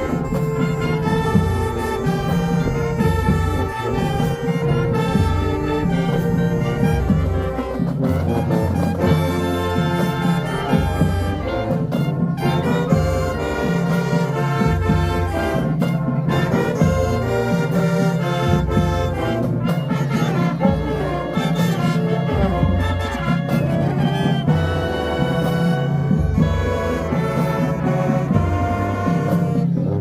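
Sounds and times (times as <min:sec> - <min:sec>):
low sustained bass notes: 0:00.0 - 0:12.0
marching band brass playing: 0:00.0 - 0:30.0.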